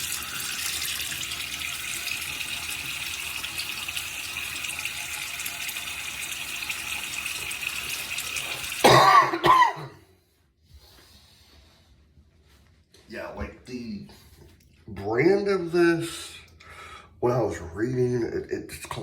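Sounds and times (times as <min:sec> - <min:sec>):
sink tap running: 0:00.0 - 0:09.0
man coughing loudly: 0:08.8 - 0:10.0.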